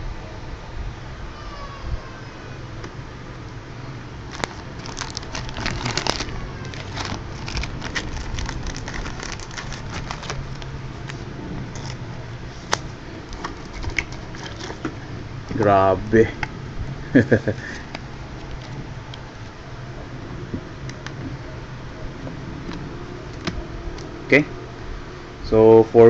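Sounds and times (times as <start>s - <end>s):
steady low hum: 0.0s - 26.0s
plastic packaging crinkling: 4.2s - 15.0s.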